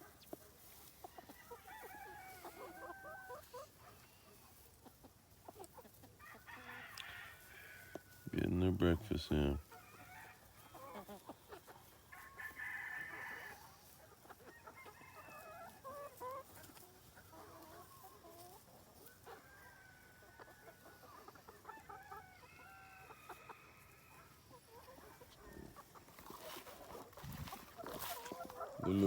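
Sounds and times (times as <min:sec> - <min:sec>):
chickens clucking faintly: 0:00.0 - 0:29.0
rooster crowing: 0:06.3 - 0:08.0, 0:12.2 - 0:13.6.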